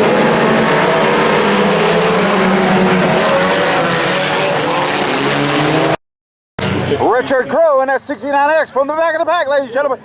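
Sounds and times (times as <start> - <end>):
race car engines running together: 0.0 - 6.0.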